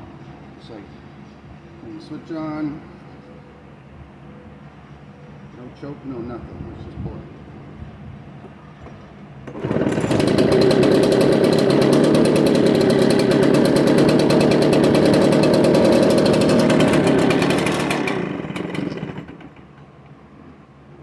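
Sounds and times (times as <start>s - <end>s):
leaf blower engine running: 9.5s - 19.7s.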